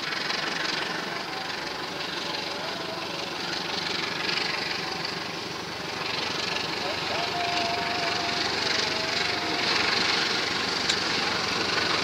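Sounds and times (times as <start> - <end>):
diesel locomotive engine running: 0.0 - 12.0
passenger train passing: 0.0 - 12.0.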